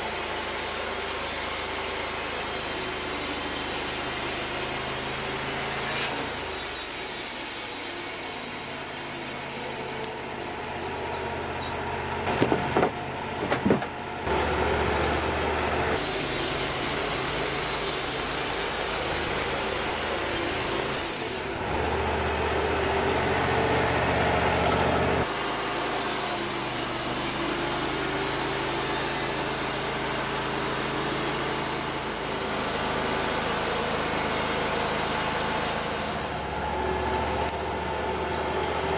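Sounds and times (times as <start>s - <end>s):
sawmill engine running: 0.0s - 38.9s
wood knocking: 12.2s - 14.0s.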